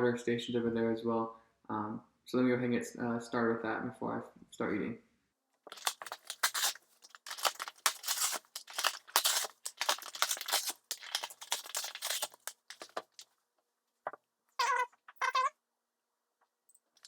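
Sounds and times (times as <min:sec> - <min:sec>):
cardboard tearing and crinkling: 0:05.7 - 0:13.2.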